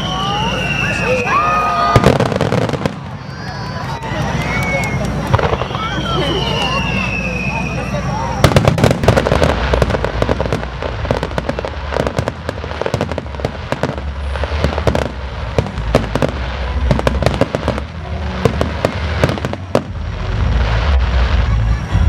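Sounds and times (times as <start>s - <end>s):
fireworks cracking and popping: 0.0s - 22.0s
low rumble of booms: 8.4s - 22.0s.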